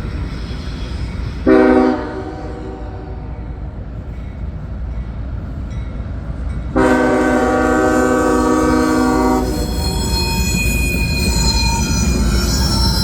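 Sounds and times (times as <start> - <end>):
freight train rumbling past: 0.0 - 13.0
locomotive air horn chord: 1.5 - 3.2, 6.8 - 10.6
high-pitched wheel squeal: 8.8 - 13.0.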